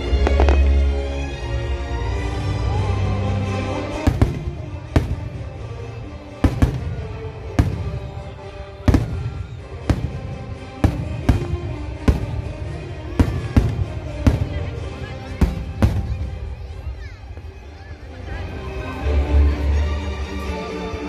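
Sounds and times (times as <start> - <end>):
music: 0.0 - 21.0
firework bangs: 0.1 - 1.0, 3.9 - 5.8, 6.4 - 16.7.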